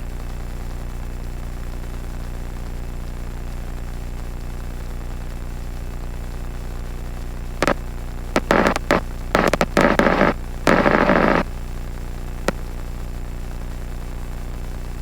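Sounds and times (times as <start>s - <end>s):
crackling radio static: 7.6s - 11.5s
radio squelch clicks: 8.4s - 11.4s.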